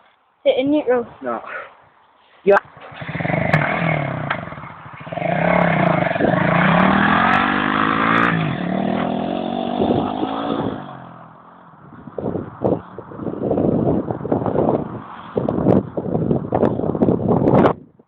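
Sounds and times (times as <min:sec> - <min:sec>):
small engine revving: 0:02.8 - 0:11.2.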